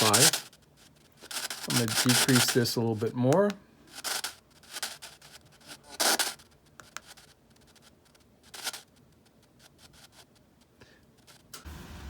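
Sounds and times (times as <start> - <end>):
radio static hiss bursts: 0.0 - 8.9.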